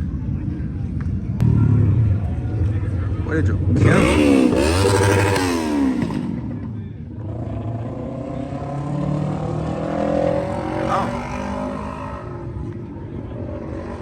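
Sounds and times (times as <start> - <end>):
car engine revving: 3.7 - 6.4, 7.4 - 12.7.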